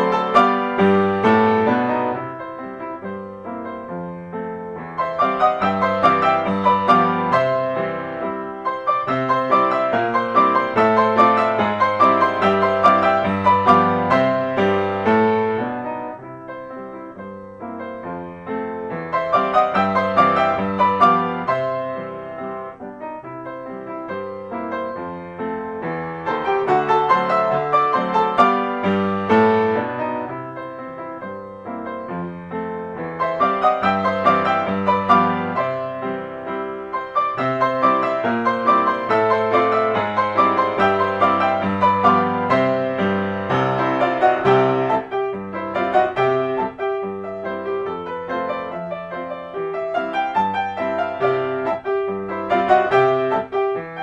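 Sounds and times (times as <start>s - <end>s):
piano music: 0.0s - 54.0s.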